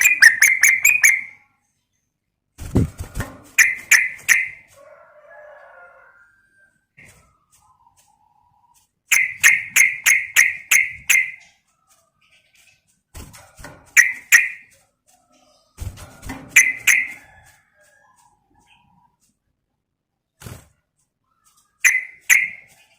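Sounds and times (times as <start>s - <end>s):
bird whistled calling: 0.0s - 1.3s.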